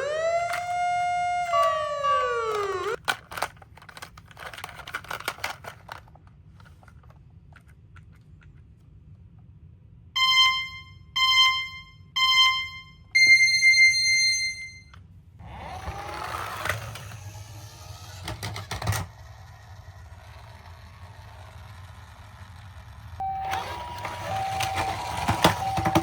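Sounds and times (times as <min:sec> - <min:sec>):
toy vehicles rattling down slope: 0:00.0 - 0:07.1, 0:15.4 - 0:26.0
electronic countdown beeps: 0:10.2 - 0:14.9.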